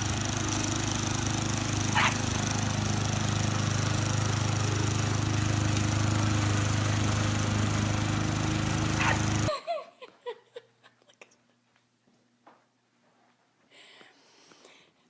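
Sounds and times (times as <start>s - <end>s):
motor hum: 0.0s - 9.5s.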